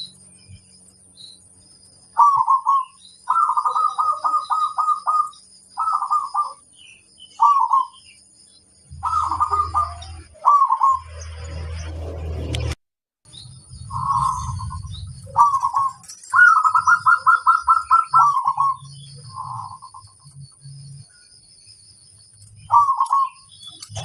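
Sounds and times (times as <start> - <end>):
low hum: 0.0 - 24.0
dove cooing: 2.2 - 6.7, 7.4 - 8.0, 8.9 - 11.0, 13.9 - 20.2, 22.6 - 23.5.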